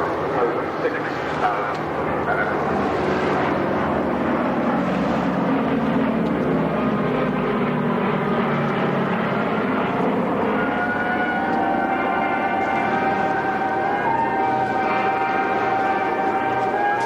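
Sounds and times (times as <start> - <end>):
propeller aircraft engines droning: 0.0 - 17.0.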